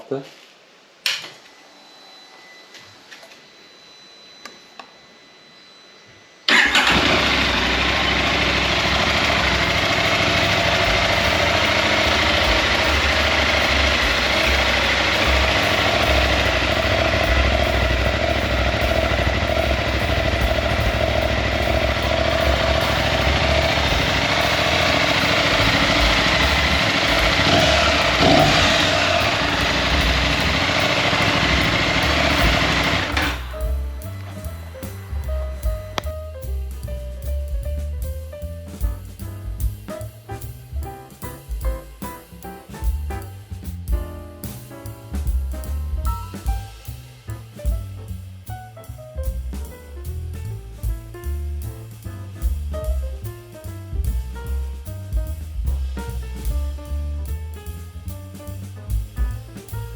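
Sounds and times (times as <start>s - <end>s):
motorcycle engine idling: 6.5s - 36.4s.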